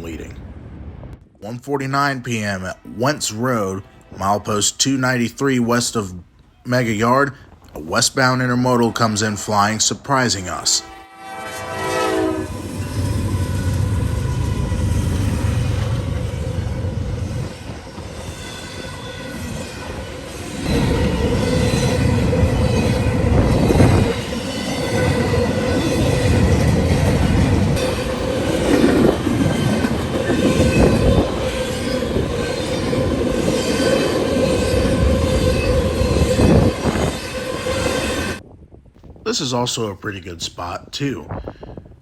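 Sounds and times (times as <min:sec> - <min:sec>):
high wheel squeal: 0:10.8 - 0:38.4
train cars rolling by: 0:11.2 - 0:38.4.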